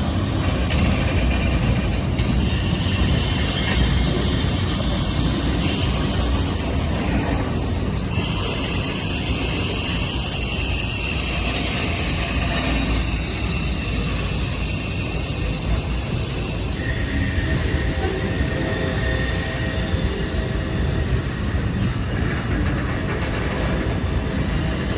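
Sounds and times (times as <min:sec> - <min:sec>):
freight train wheels rumbling: 0:00.0 - 0:24.9
high-pitched wheel squeal: 0:02.3 - 0:22.2.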